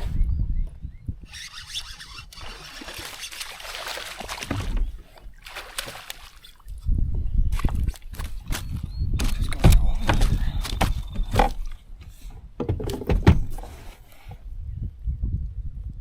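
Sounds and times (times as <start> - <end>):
wind rumble on microphone: 0.0 - 2.6, 6.6 - 16.0
water splashing and trickling: 1.3 - 11.9.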